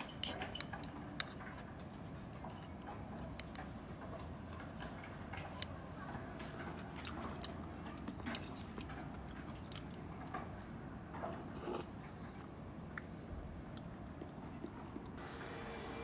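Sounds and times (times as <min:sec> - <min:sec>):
person chewing soup: 0:06.4 - 0:10.1, 0:11.5 - 0:12.0.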